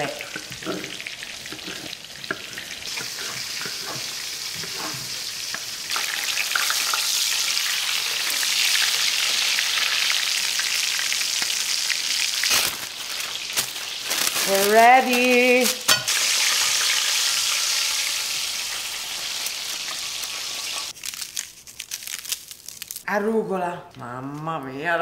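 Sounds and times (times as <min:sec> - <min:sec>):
chicken frying in oil: 0:00.0 - 0:12.6, 0:16.1 - 0:21.0.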